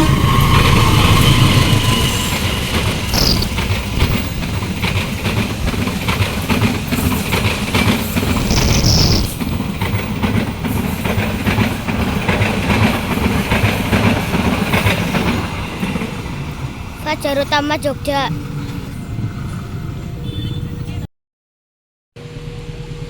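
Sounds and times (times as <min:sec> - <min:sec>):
high-pitched wheel squeal: 0:00.0 - 0:04.4, 0:08.4 - 0:09.4
train wheels clattering over rails: 0:00.0 - 0:17.1.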